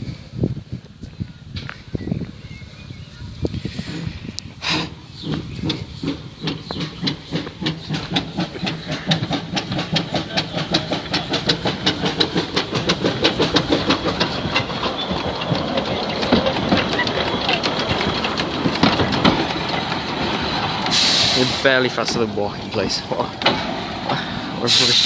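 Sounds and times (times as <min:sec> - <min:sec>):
steam locomotive chuffing: 0:03.4 - 0:25.0
steam hiss: 0:03.6 - 0:13.9, 0:20.8 - 0:22.0, 0:24.3 - 0:25.0.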